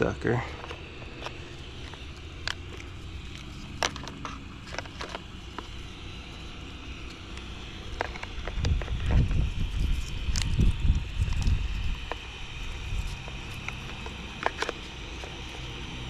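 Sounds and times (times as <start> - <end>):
clicks of handling small parts: 0.6 - 5.7, 13.5 - 15.6
wind rumble on microphone: 8.5 - 12.1.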